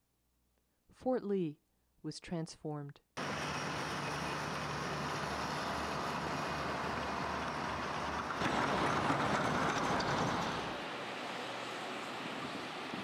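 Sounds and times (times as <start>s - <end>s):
large vehicle engine humming: 3.2s - 13.0s.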